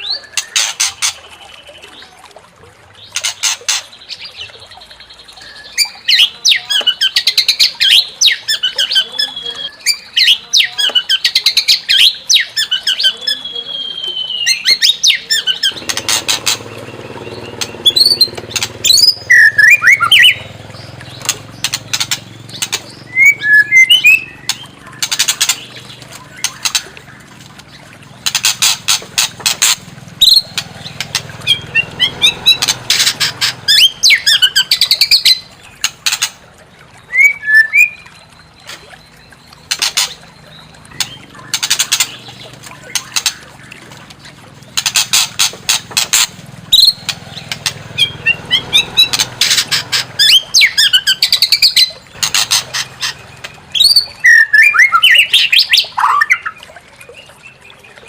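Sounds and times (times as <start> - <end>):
bird singing rattles and whistles: 13.7 - 27.2.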